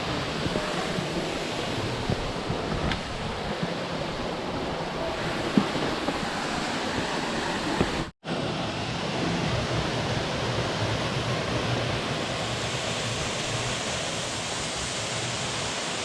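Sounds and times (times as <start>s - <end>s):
rushing stream water: 0.0s - 16.0s
waterfall roar: 0.0s - 16.0s.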